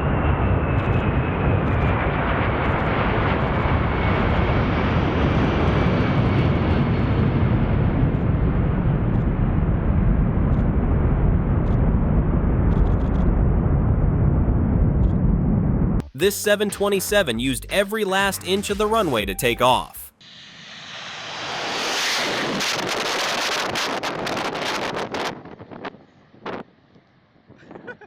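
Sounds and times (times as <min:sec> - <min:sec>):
jet aircraft passing by: 0:00.0 - 0:09.7, 0:20.2 - 0:27.3.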